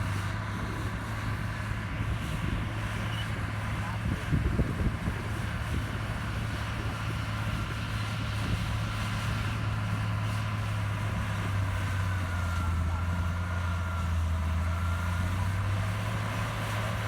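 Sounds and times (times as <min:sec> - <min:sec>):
heavy machinery diesel engine running: 0:00.0 - 0:17.0.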